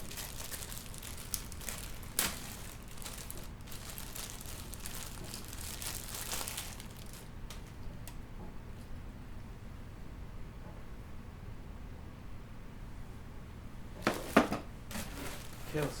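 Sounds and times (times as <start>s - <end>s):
plastic packaging crinkling: 0.0s - 8.2s, 14.0s - 16.0s.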